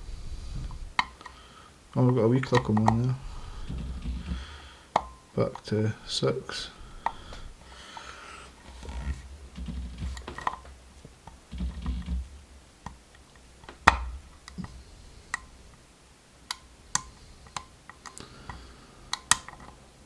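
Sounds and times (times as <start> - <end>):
low rumbling handling noise: 0.0 - 1.2, 2.0 - 4.8, 5.4 - 15.8
lock pick metallic clicks: 16.5 - 19.8.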